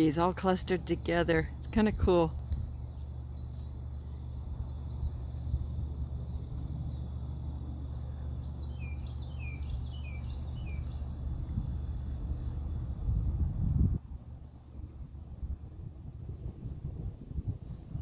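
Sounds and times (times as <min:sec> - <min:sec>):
high insect drone: 0:00.0 - 0:16.8
bird chirping: 0:00.9 - 0:11.6.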